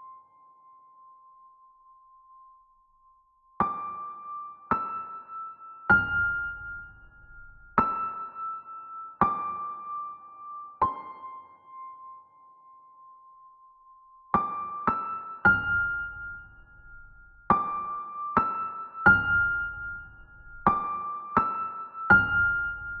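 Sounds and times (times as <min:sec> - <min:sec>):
soft piano music: 0:03.6 - 0:13.6, 0:14.2 - 0:23.0.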